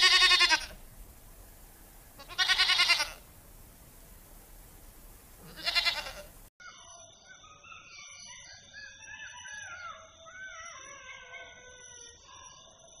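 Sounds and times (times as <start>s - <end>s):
goat bleating: 0.0s - 0.9s, 2.2s - 3.3s, 5.4s - 6.4s
birds chirping and singing: 3.2s - 12.8s.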